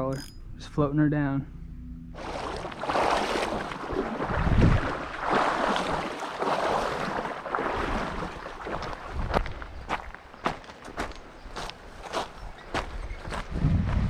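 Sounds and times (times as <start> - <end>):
wind buffeting microphone: 3.8 - 5.2, 8.6 - 10.2, 12.4 - 14.0.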